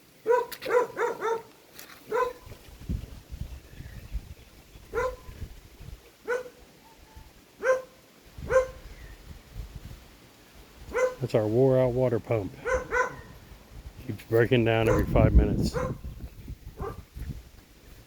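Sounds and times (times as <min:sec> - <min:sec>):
dog barking: 0:00.2 - 0:01.5, 0:02.1 - 0:02.5, 0:04.9 - 0:05.3, 0:06.2 - 0:06.6, 0:07.6 - 0:08.8, 0:10.9 - 0:11.2, 0:12.6 - 0:13.4, 0:14.8 - 0:16.0, 0:16.8 - 0:17.0.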